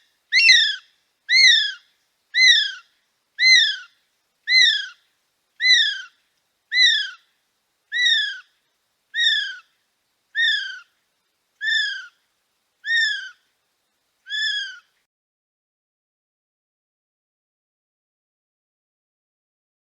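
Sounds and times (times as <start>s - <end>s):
kiwi shrill whistled calls: 0.0s - 1.8s, 2.4s - 5.0s, 5.6s - 7.2s, 7.9s - 8.5s, 9.2s - 9.7s, 10.4s - 10.9s, 11.6s - 12.2s, 12.8s - 13.4s, 14.3s - 14.9s.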